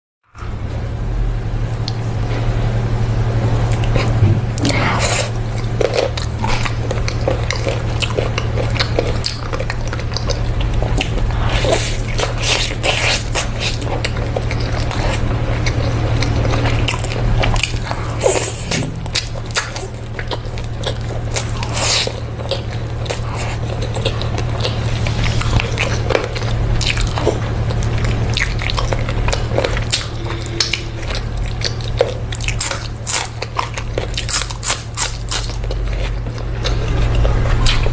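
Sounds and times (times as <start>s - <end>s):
steady low hum: 0.2s - 37.9s
crunchy chewing: 3.5s - 37.9s.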